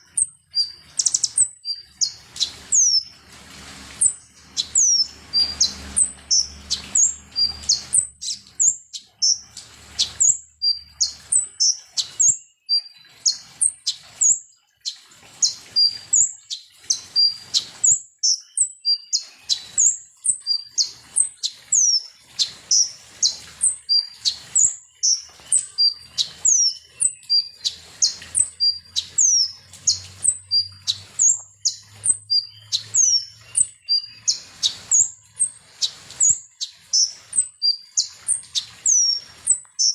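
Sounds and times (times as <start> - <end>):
sunbird chirping and whistling: 0.0 - 39.9.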